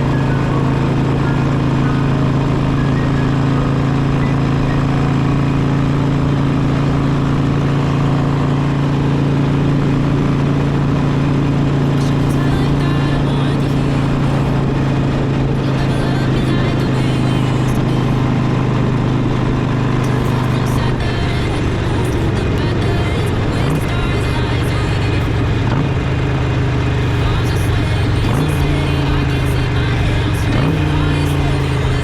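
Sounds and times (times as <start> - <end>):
motorcycle engine cruising: 0.0 - 32.0
road and wind noise: 0.0 - 32.0.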